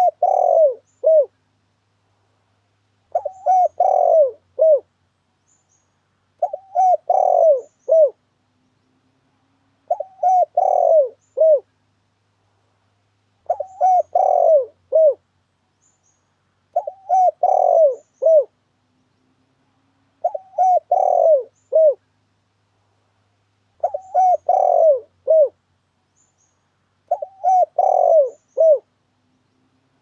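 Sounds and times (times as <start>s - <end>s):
dove cooing: 0.0s - 1.4s, 3.1s - 4.9s, 6.4s - 8.2s, 9.8s - 11.7s, 13.4s - 15.2s, 16.7s - 18.6s, 20.2s - 22.0s, 23.8s - 25.6s, 27.1s - 29.0s.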